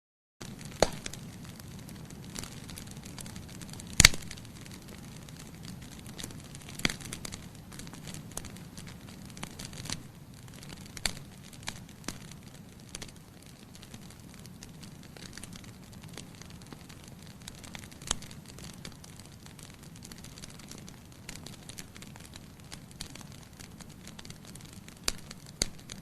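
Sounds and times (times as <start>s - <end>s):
wood fire crackling and popping: 0.4s - 26.0s.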